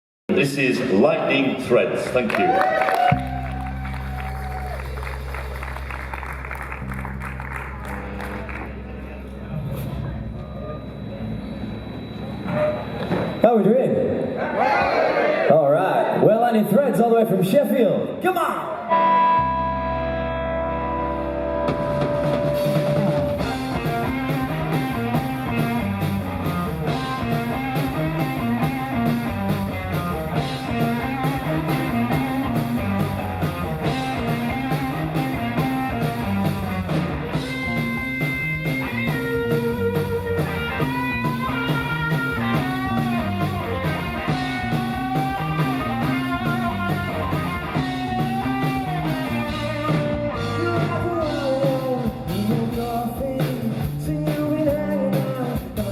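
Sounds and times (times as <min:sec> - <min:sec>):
drums: 0:00.3 - 0:14.4, 0:16.6 - 0:55.9
lead guitar bending notes: 0:18.7 - 0:51.5
repeating low guitar riff: 0:18.8 - 0:52.7.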